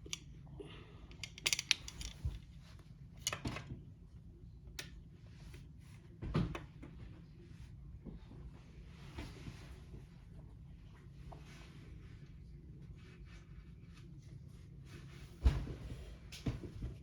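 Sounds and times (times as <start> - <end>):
plastic parts clicking: 1.1 - 2.3.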